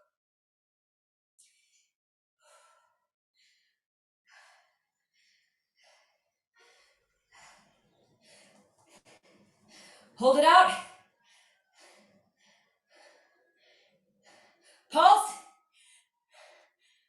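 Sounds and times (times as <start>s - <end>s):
woman breathing out in puffs: 15.8s - 17.0s.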